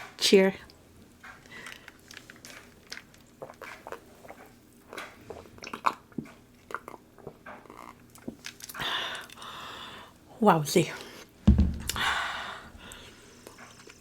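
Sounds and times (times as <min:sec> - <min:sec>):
small clicks and crackles: 0:01.2 - 0:05.1.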